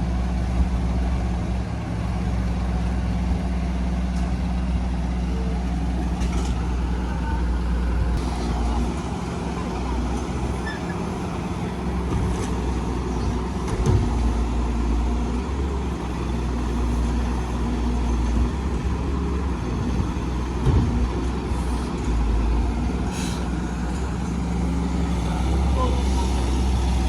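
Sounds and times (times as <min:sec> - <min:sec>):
diesel construction machinery droning: 0:00.0 - 0:27.0.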